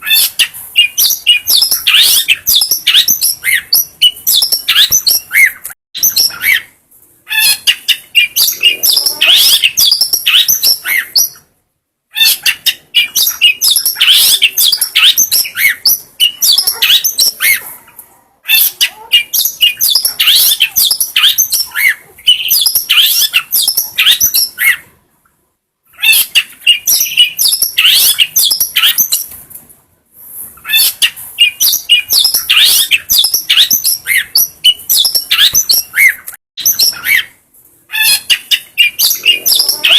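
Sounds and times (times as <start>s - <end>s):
shrike chattering and chirping: 7.3s - 11.4s, 12.2s - 17.7s, 37.9s - 39.9s.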